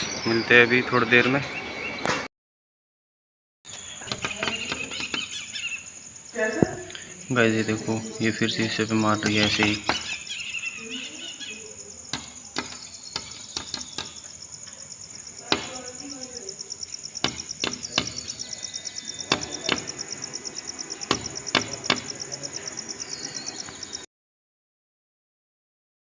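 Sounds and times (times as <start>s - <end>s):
bird pecking at glass: 4.0s - 5.6s, 12.1s - 14.4s.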